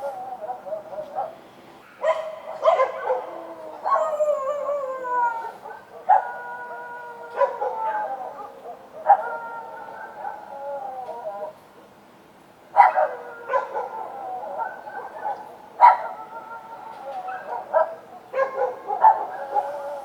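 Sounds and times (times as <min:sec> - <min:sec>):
dogs barking and howling: 0:00.0 - 0:11.6, 0:12.7 - 0:20.0.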